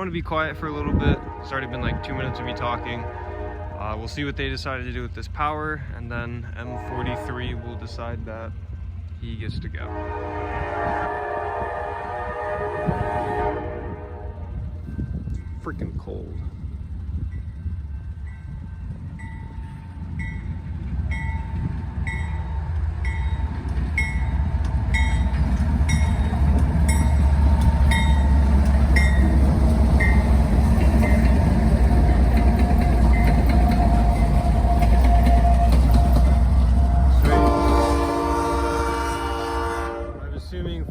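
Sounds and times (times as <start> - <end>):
diesel locomotive engine rumble: 0.0 - 40.9
locomotive bell ringing: 14.5 - 39.1.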